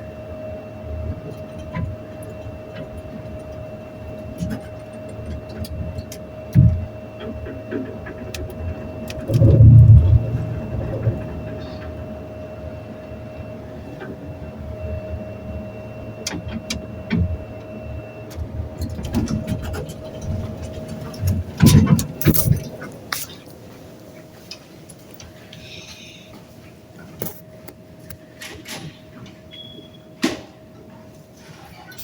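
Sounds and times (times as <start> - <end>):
elevator whine and rumble: 0.0 - 32.0.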